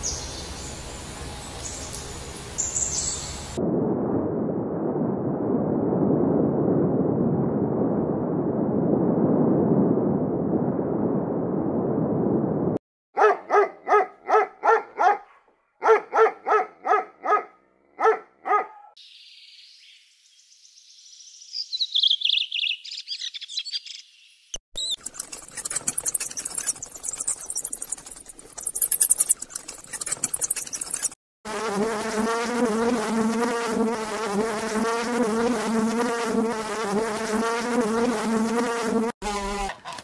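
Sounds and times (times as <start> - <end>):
low rushing noise: 3.4 - 12.8
small dog yapping: 13.2 - 19.0
high-pitched chirping: 24.8 - 31.2.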